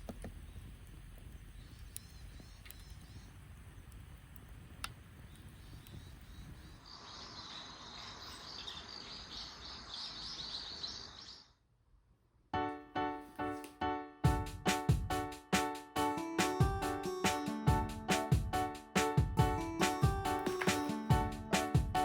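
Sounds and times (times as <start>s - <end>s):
faint clicks: 0.0s - 6.2s
flock of small birds chirping: 1.3s - 3.9s, 5.2s - 11.5s.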